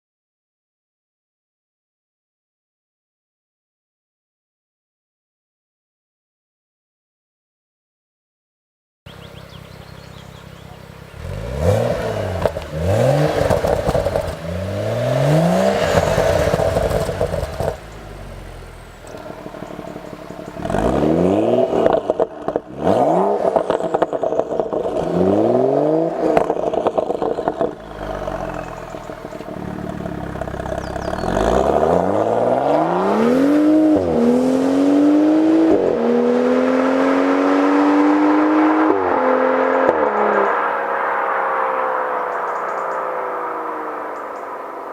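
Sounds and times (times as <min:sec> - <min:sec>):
car exhaust revving: 0:09.1 - 0:44.9.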